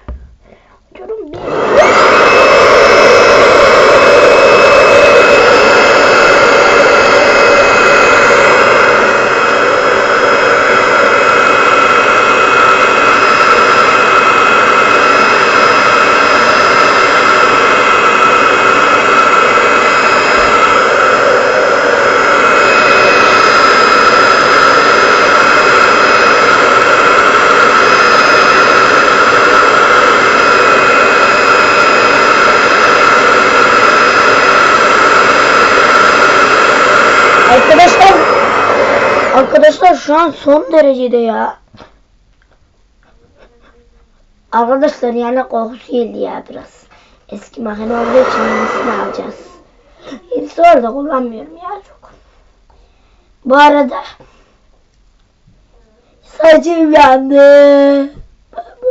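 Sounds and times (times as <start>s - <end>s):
hair dryer running: 1.3s - 41.0s, 47.4s - 51.4s.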